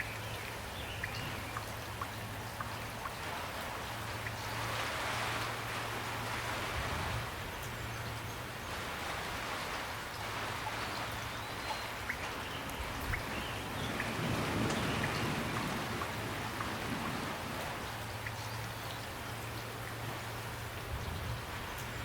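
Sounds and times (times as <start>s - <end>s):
raindrops ticking: 0.0s - 6.6s, 7.3s - 22.0s
steady rain: 0.0s - 22.0s.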